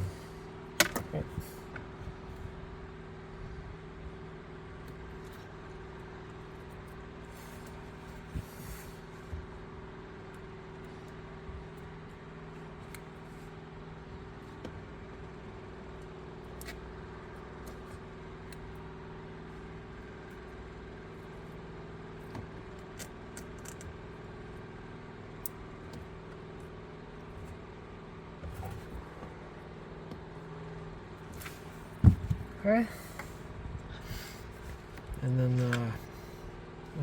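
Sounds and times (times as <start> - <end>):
clicks and taps from wires: 22.3 - 24.0.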